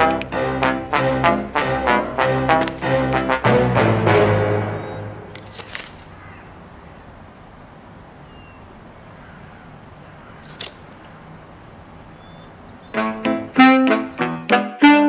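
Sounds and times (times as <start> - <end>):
brief rustle: 5.3 - 6.2, 10.4 - 11.1
faint caw-like bird calls: 6.1 - 7.2, 8.2 - 11.2.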